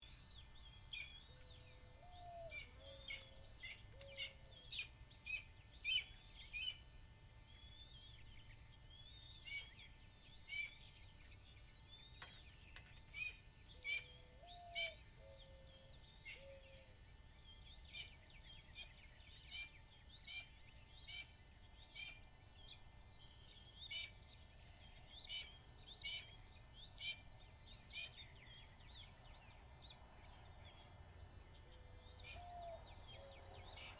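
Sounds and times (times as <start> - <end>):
low bird call: 13.1 - 17.0, 31.4 - 33.9.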